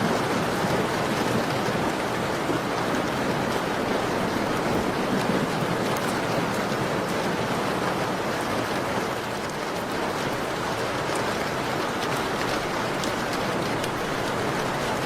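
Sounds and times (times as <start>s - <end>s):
steady rain: 0.0s - 15.0s
faint wood fire crackles: 9.4s - 15.0s.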